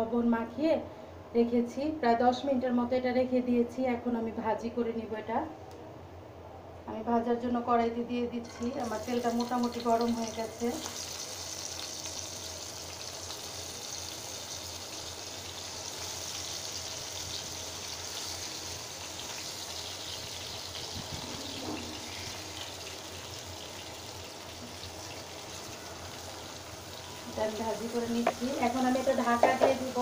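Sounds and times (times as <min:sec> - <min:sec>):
slices sizzling in hot oil: 0:08.4 - 0:30.0.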